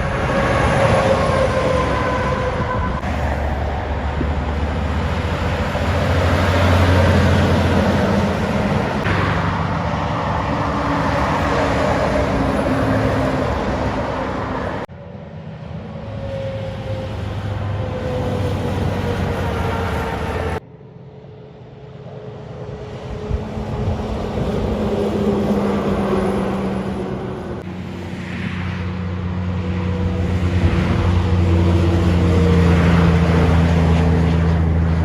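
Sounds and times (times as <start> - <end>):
moving vehicle rumble: 0.0 - 35.0.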